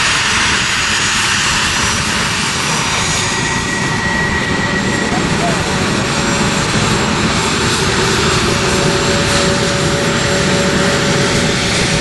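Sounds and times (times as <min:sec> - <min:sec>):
jet engines rushing and whining: 0:00.0 - 0:12.0.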